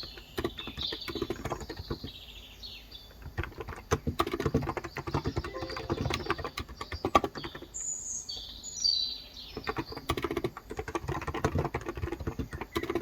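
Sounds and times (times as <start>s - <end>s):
fast keyboard typing: 0.0s - 2.2s, 3.2s - 7.8s, 9.6s - 13.0s.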